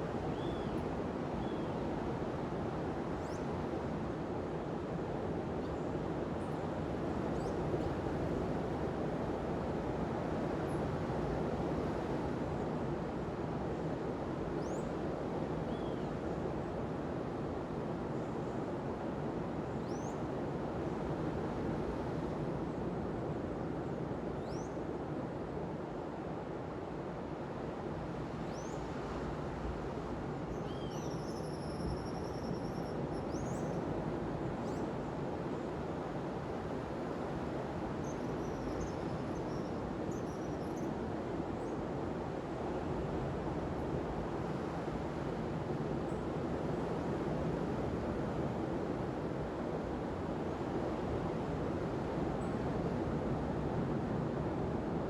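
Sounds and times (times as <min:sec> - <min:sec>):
faint high bird chirps: 0:30.7 - 0:33.8
sea surf on a beach: 0:41.0 - 0:55.0.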